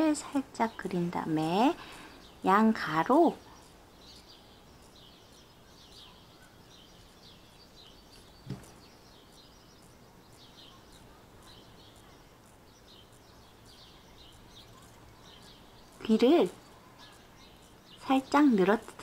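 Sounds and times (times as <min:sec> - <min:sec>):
small bird chirps: 0:00.1 - 0:19.0
soft thump: 0:08.4 - 0:08.8.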